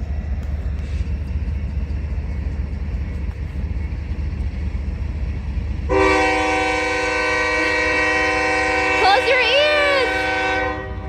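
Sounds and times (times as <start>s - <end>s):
train rumbling: 0.0s - 11.0s
train horn blowing: 5.9s - 11.0s.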